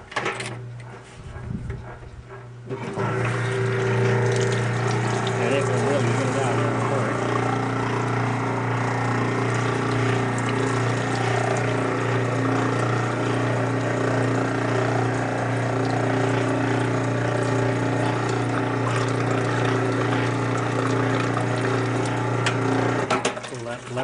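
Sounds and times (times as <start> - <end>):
drain pump motor humming: 0.0 - 24.0.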